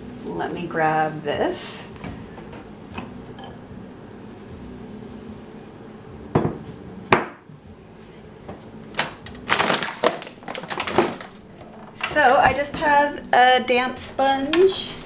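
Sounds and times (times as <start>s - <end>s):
bowl knocking on hard surface: 6.3s - 7.4s.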